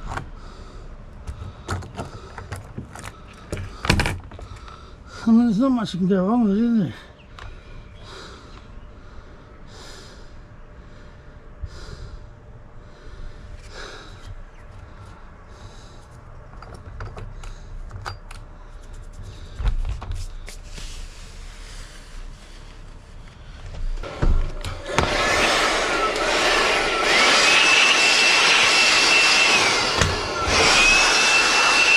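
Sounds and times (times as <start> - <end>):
breathing close to microphone: 7.1 - 16.3
loud thump: 24.1 - 25.2.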